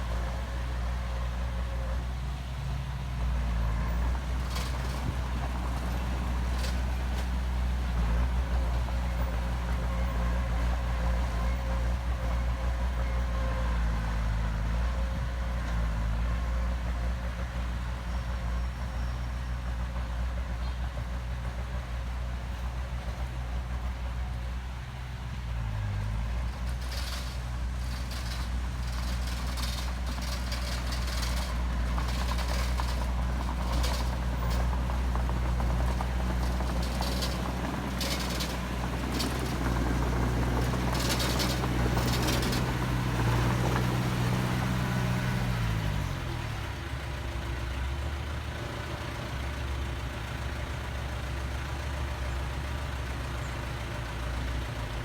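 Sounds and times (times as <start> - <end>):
heavy diesel engine running: 0.0 - 55.0
machinery clanking: 26.4 - 46.1.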